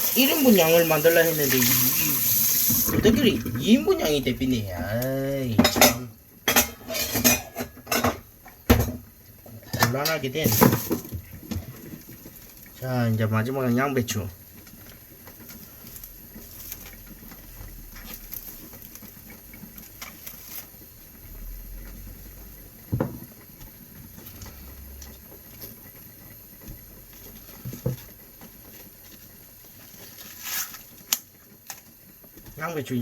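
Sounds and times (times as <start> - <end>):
cabbage leaves rustling and crackling: 0.0 - 5.5, 10.2 - 11.2, 15.4 - 21.5, 27.0 - 32.0
knocks against a surface: 22.9 - 23.2.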